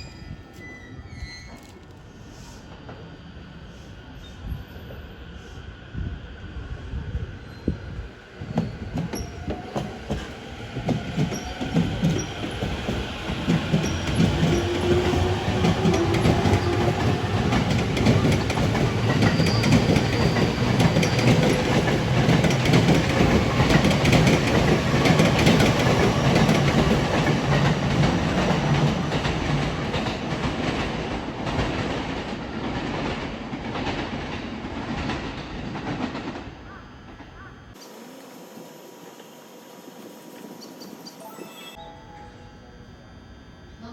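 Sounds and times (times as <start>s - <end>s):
train wheels clacking on rails: 8.4s - 37.5s.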